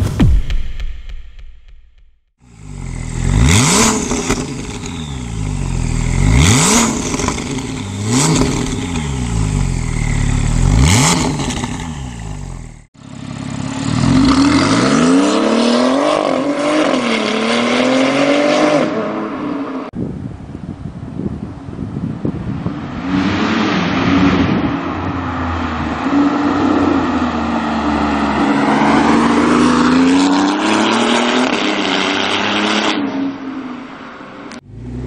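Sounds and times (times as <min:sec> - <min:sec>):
car engine revving: 0:02.4 - 0:19.2, 0:23.1 - 0:33.0.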